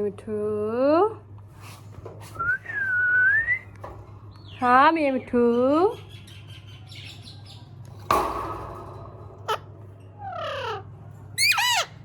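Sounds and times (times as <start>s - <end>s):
parrot squawking: 9.5s - 12.0s.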